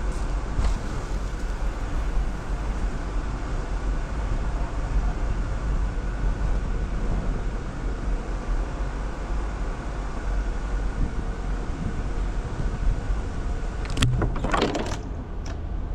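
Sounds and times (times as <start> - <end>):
off-road vehicle engine rumble: 0.0 - 15.9.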